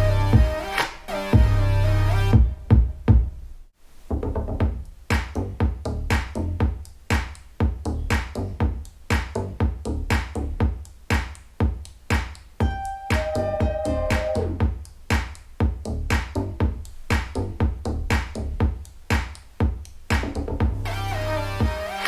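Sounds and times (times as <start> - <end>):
electronic music with heavy bass: 0.0 - 2.7, 12.6 - 14.7, 20.6 - 22.0.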